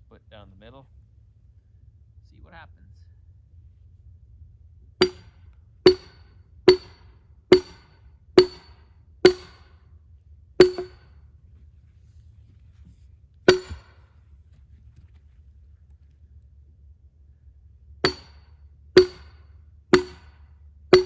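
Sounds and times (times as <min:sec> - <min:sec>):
maul hammering metal wedge: 0:05.0 - 0:05.3, 0:05.9 - 0:09.7, 0:10.6 - 0:11.1, 0:13.5 - 0:14.0, 0:18.0 - 0:21.0.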